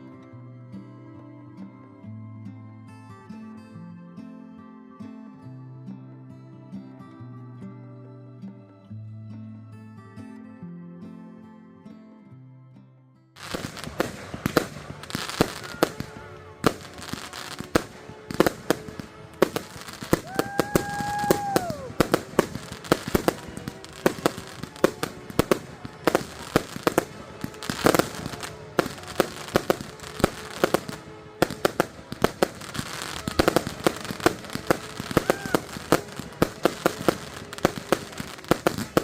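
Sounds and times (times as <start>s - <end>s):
firework whistling tone: 13.4s - 39.0s
fireworks bangs and crackling: 13.4s - 39.0s.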